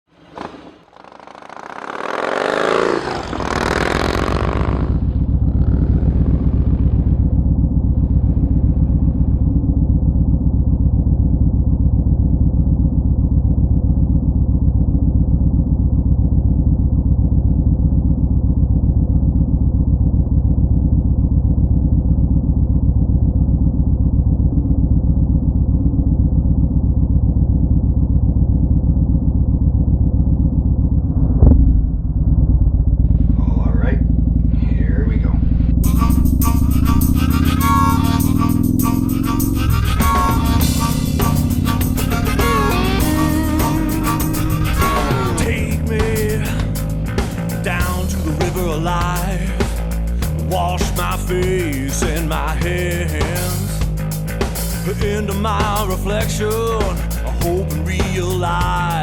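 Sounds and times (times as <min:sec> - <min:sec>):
motorcycle engine droning: 0:00.0 - 0:59.0
loud rushing sweep: 0:30.9 - 0:47.6.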